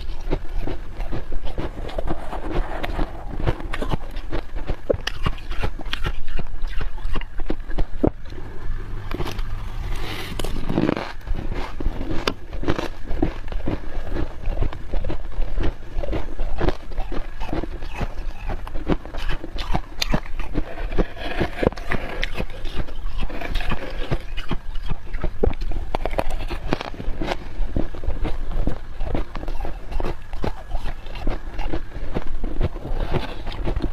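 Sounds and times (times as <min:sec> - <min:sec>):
spoon digging out frost: 0:00.0 - 0:06.2, 0:16.1 - 0:25.3
chewing squeaky crunches: 0:00.0 - 0:08.4, 0:09.0 - 0:33.9.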